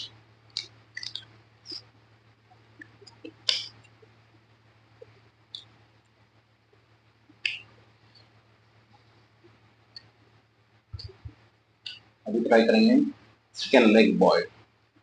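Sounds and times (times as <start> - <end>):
mouth clicks and lip smacks: 0.0 - 1.9, 2.6 - 6.1, 7.3 - 8.3, 11.0 - 12.1
low electrical hum: 0.0 - 15.0.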